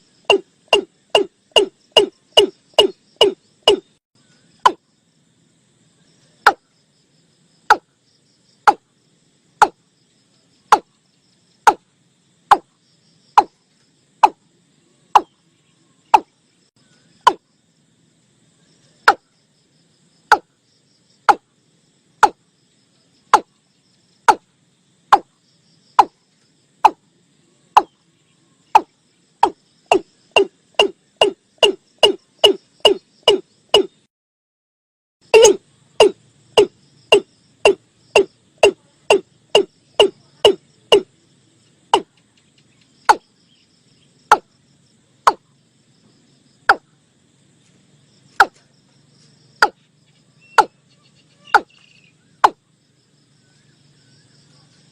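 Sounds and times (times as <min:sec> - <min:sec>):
bird calling with booming notes: 0:00.0 - 0:05.0, 0:06.4 - 0:06.7, 0:07.7 - 0:08.0, 0:08.6 - 0:08.9, 0:10.6 - 0:11.9, 0:14.2 - 0:14.5, 0:15.1 - 0:15.4, 0:16.0 - 0:17.5, 0:19.0 - 0:19.3, 0:20.2 - 0:21.5, 0:22.2 - 0:22.4, 0:23.2 - 0:23.6, 0:24.2 - 0:24.5, 0:25.1 - 0:26.2, 0:27.7 - 0:28.1, 0:28.7 - 0:34.1, 0:35.2 - 0:41.1, 0:41.9 - 0:44.6, 0:45.3 - 0:45.5, 0:49.6 - 0:52.6.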